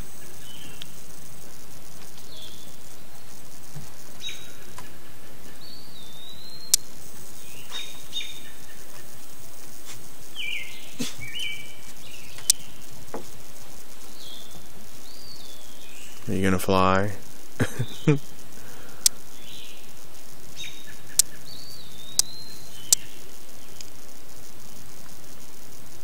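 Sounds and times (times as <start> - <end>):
insects buzzing: 0.0 - 26.0
sharp clicks: 6.7 - 6.9, 12.3 - 12.7
birds chirping and whistling: 10.3 - 12.7.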